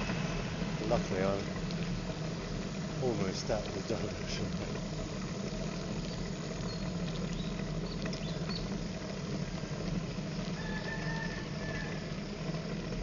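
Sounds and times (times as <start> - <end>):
moving bike rumble: 0.0 - 13.0
rooster crowing: 10.5 - 12.2.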